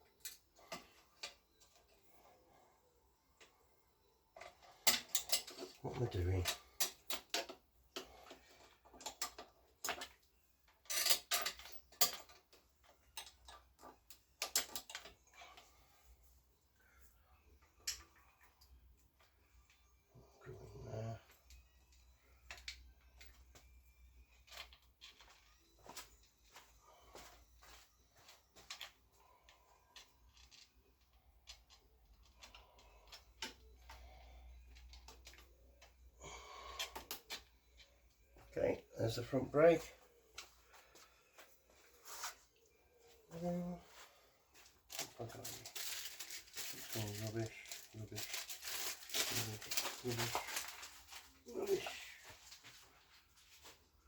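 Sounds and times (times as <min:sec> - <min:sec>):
metal parts and tools clinking: 0:04.3 - 0:15.8, 0:17.6 - 0:19.8, 0:20.7 - 0:36.1, 0:44.5 - 0:52.8.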